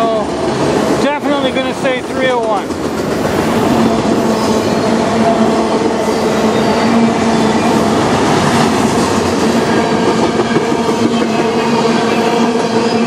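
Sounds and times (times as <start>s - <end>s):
steel wheels running on rail: 0.0s - 13.0s.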